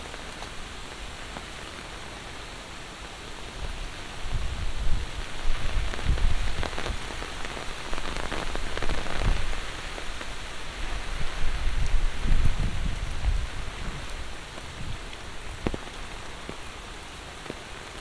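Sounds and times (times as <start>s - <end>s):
heavy rain hissing: 0.0s - 18.0s
close raindrops tapping: 5.1s - 18.0s.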